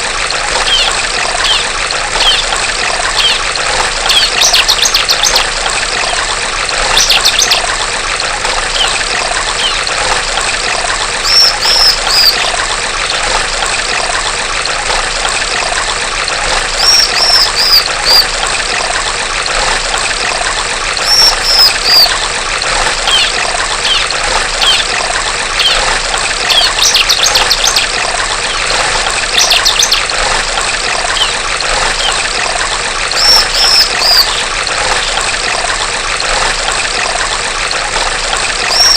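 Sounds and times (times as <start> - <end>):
running water trickling: 0.0 - 38.9
bird chirping rapidly: 0.6 - 6.2, 6.8 - 7.6, 8.7 - 9.0, 9.6 - 9.9, 11.2 - 12.6, 16.8 - 18.2, 21.0 - 22.1, 23.0 - 25.0, 25.6 - 30.1, 31.1 - 32.2, 33.1 - 35.2, 38.7 - 38.9.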